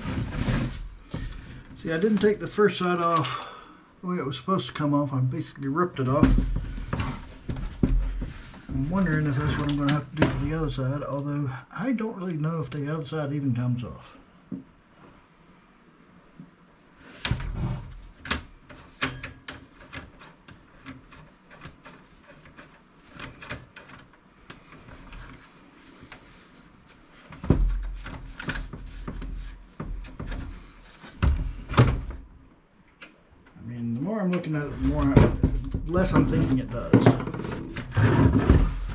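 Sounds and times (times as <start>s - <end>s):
heavy thumps: 6.1s - 10.9s, 34.6s - 38.9s.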